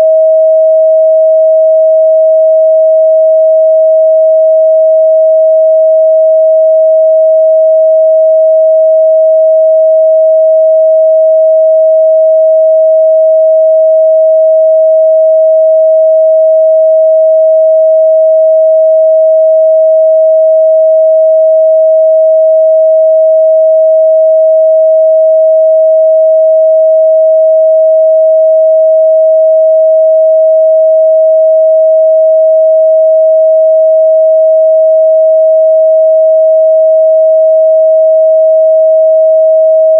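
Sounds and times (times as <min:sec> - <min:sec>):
sine test tone: 0:00.0 - 0:39.9.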